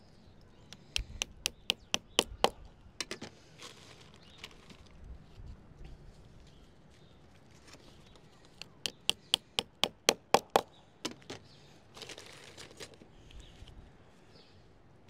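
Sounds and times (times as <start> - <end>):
tool knocking on metal: 8.8 - 10.7
scraping rustle: 11.9 - 13.8.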